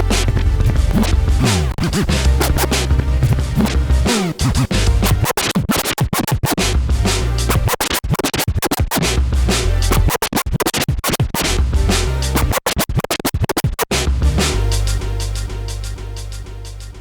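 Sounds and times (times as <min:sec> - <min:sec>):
bass-heavy hip hop beat: 0:00.0 - 0:05.4, 0:06.6 - 0:07.8, 0:09.0 - 0:10.2, 0:11.4 - 0:12.6, 0:13.9 - 0:17.0
turntable record scratches: 0:00.0 - 0:15.0.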